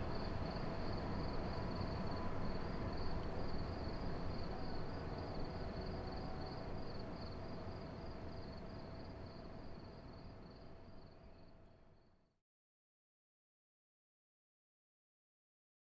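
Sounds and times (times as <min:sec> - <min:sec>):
crickets chirping: 0:00.1 - 0:11.4.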